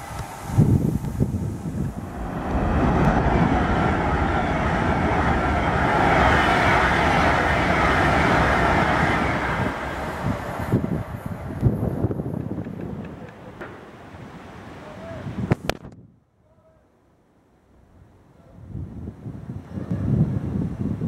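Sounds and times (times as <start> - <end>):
train rushing past: 0.0 - 15.2.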